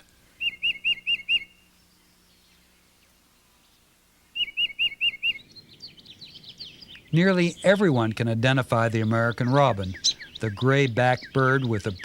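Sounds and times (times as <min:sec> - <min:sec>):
songbird whistling: 0:00.0 - 0:02.6, 0:03.6 - 0:07.7, 0:09.1 - 0:12.0.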